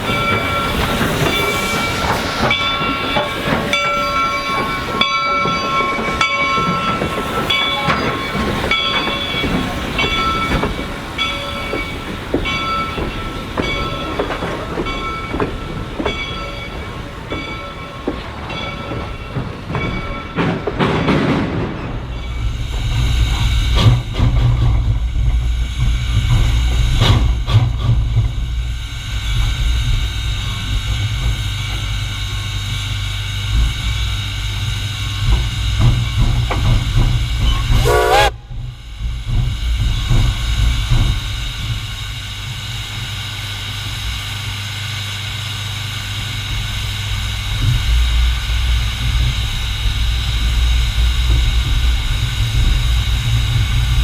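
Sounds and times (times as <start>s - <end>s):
steam train ringing beats: 0.0s - 54.0s.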